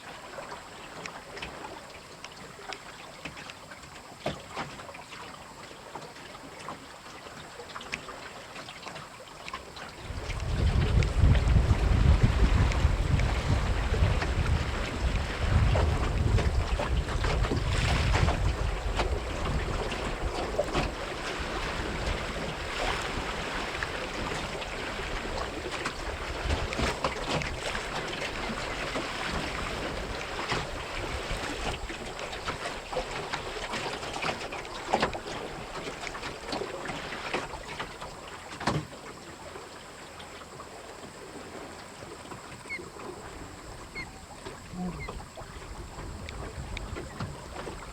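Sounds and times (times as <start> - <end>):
water splashing along boat hull: 0.0 - 47.9
wind buffeting microphone: 10.0 - 33.0, 43.1 - 47.9.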